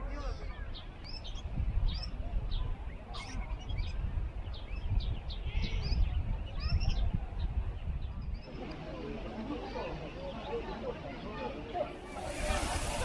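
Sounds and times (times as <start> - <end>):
small birds chirping: 11.9 - 13.0.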